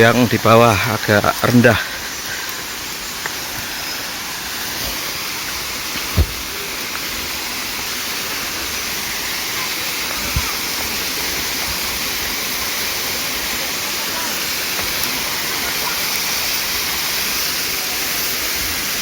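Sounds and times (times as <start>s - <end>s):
waterfall pouring: 0.0s - 19.0s
dull thumps: 6.0s - 6.5s.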